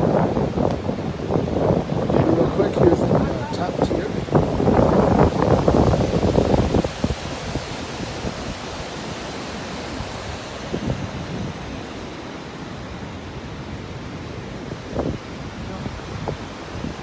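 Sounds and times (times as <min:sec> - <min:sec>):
roar of waterfall: 0:00.0 - 0:13.3, 0:14.7 - 0:17.0.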